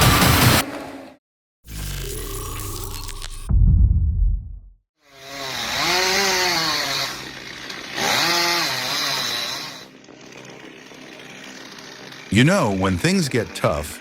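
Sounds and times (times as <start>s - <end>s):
short low boom: 3.5s - 4.8s
chainsaw engine revving: 5.0s - 14.0s.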